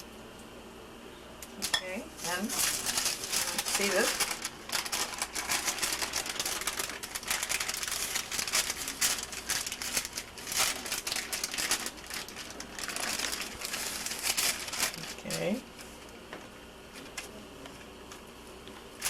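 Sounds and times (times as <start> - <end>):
wax paper crinkling: 2.2 - 16.2.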